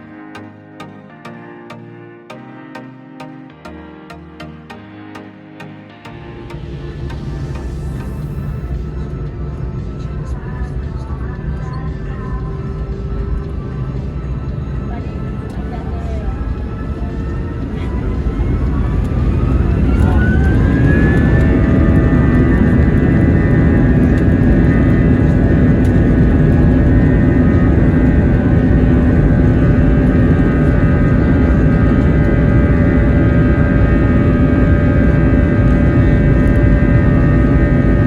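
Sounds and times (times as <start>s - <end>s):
jet engines spooling up: 2.7s - 9.3s.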